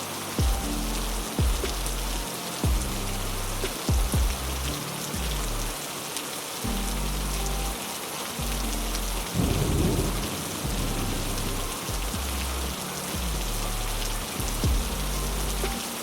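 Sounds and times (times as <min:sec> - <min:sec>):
heavy rain: 0:00.0 - 0:16.0
thunder: 0:09.4 - 0:11.2.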